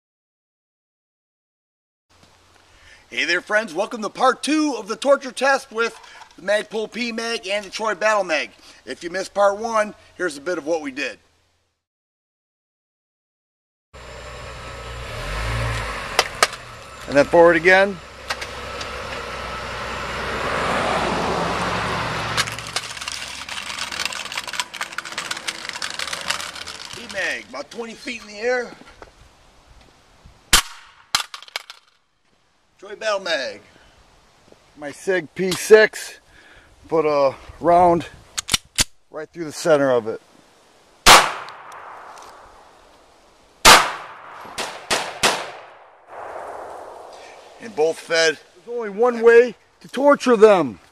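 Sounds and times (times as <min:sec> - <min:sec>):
vehicle engine and tyre noise: 0:14.0 - 0:30.2, 0:40.5 - 0:44.8, 0:45.6 - 0:50.9
sharp crack: 0:15.6 - 0:19.3, 0:21.8 - 0:27.8, 0:30.5 - 0:32.0, 0:41.0 - 0:42.8, 0:43.6 - 0:48.2
small crackling clicks: 0:22.4 - 0:27.3
sharp gunshot cracks: 0:30.5 - 0:31.4, 0:41.1 - 0:42.6, 0:43.6 - 0:47.6
gunshot with echo: 0:41.1 - 0:42.2, 0:43.7 - 0:47.6.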